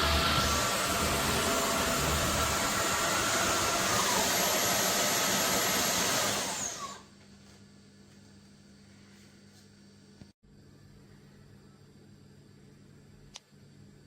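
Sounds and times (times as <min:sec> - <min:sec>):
vacuum mop motor humming: 0:00.0 - 0:07.1.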